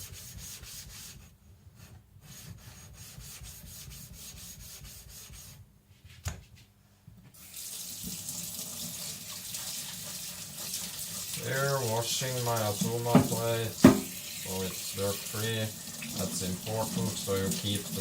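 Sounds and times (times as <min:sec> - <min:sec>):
tap water running onto metal plate: 0:07.4 - 0:18.0
sharp knock: 0:13.2 - 0:14.1.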